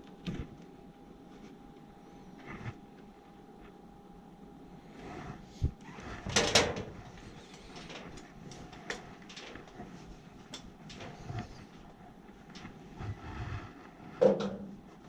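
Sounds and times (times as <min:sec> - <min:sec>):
scraping rustle: 0:04.9 - 0:14.2.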